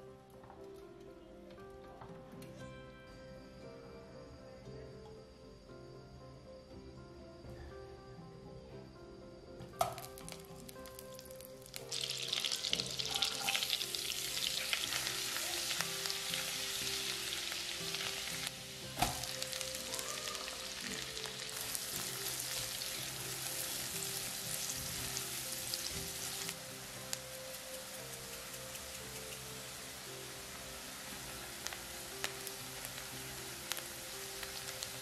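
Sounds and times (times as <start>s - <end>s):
garlic sizzling in a pan: 9.8s - 35.0s.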